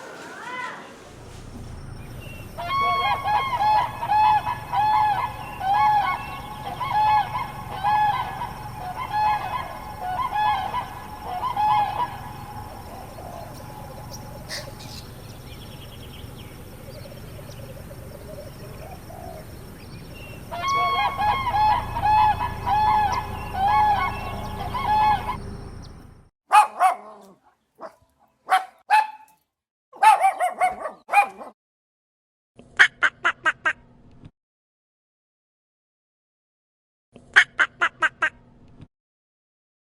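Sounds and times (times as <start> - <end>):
rapid bird calls: 0.0 - 26.3
short arching bird calls: 0.0 - 26.3
steady low rumble: 1.0 - 26.2.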